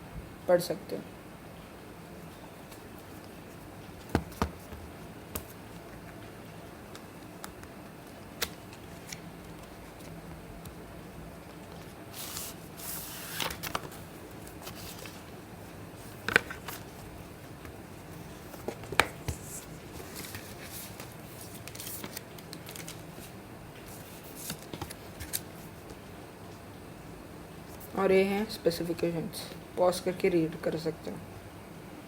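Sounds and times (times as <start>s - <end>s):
packaging rustling: 11.5s - 15.4s, 16.0s - 23.4s.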